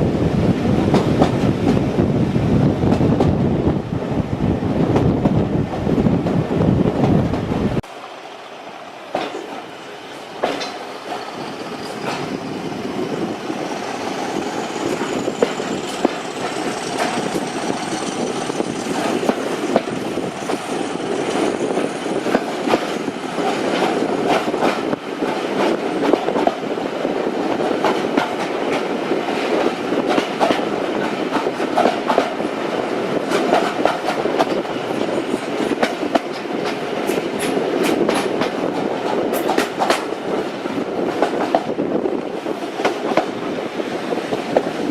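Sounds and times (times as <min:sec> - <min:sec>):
train wheels clattering: 0:09.0 - 0:26.8, 0:27.4 - 0:43.4.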